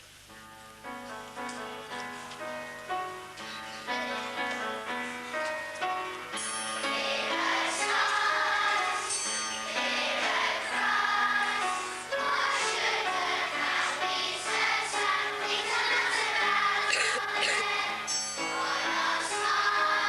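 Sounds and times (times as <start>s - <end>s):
instrumental backing music: 0.0s - 20.0s
choir singing held notes: 6.8s - 20.0s.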